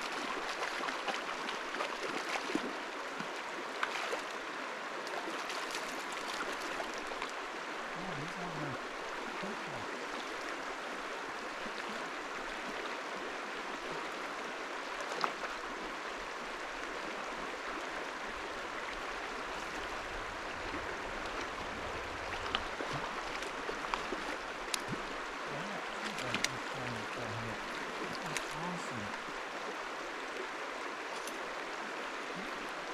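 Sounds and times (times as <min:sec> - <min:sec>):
river water rushing: 0:00.0 - 0:32.9
faint clicks: 0:22.4 - 0:25.1, 0:28.0 - 0:28.6.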